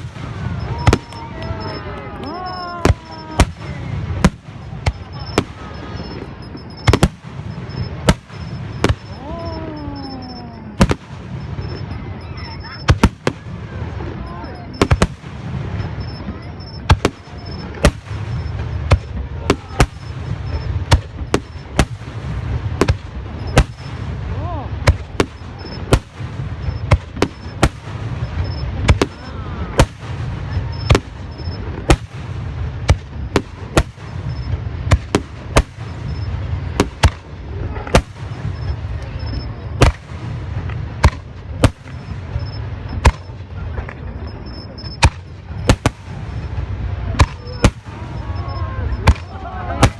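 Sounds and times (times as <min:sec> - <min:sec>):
fireworks bangs: 0:00.0 - 0:49.9
steady low rumble: 0:00.0 - 0:49.9.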